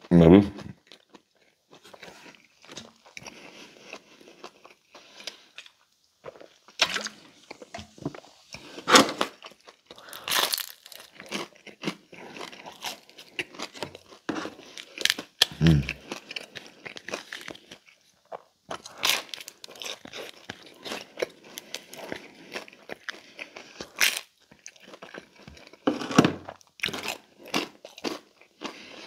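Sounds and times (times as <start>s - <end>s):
chewing crisp food: 0.6s - 29.0s
mouth sounds: 15.5s - 16.0s.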